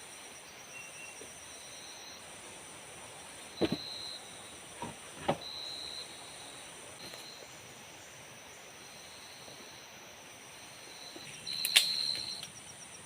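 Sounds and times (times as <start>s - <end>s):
forest insects buzzing: 0.0s - 13.0s
sharp knocks: 3.6s - 3.8s.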